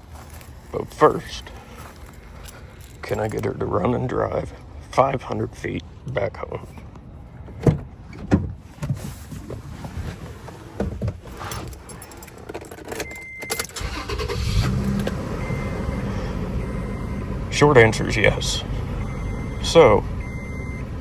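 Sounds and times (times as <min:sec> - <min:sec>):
truck engine starting and running: 0:00.0 - 0:09.1, 0:11.8 - 0:21.0
keys jangling: 0:11.4 - 0:13.8.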